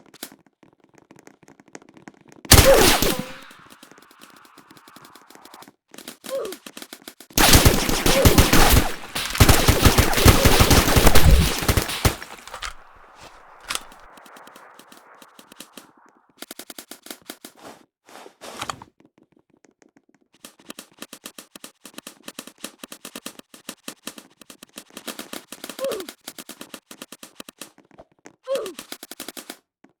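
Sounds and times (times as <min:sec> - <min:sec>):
airsoft guns firing full-auto: 0:02.5 - 0:04.4, 0:07.4 - 0:15.7.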